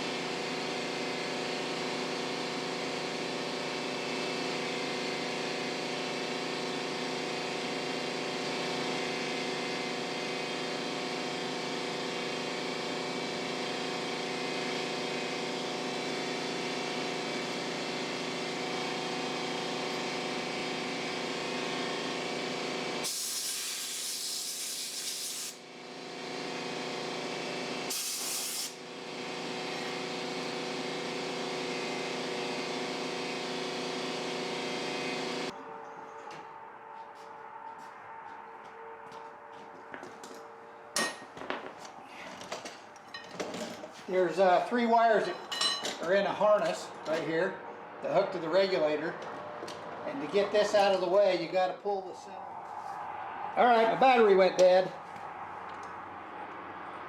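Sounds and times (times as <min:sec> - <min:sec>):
spraying hiss: 0:23.0 - 0:25.6, 0:27.9 - 0:28.8.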